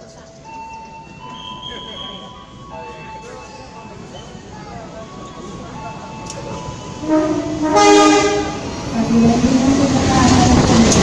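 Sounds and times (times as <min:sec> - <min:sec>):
train wheel noise: 0:00.0 - 0:11.0
locomotive horn: 0:07.0 - 0:08.6.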